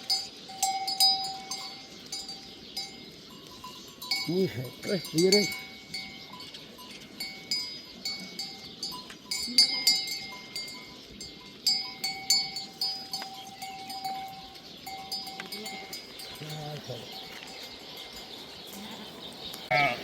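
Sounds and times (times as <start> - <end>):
livestock bells clanking: 0.0 - 20.0
faint sheep bleat: 18.8 - 20.0.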